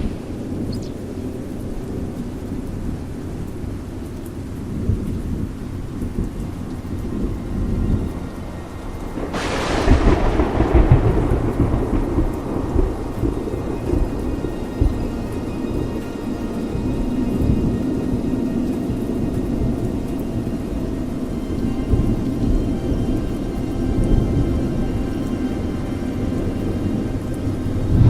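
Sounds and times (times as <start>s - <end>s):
low rolling thunder: 0.0s - 28.0s
rain: 0.0s - 28.0s
sharp thunderclap: 9.2s - 15.0s.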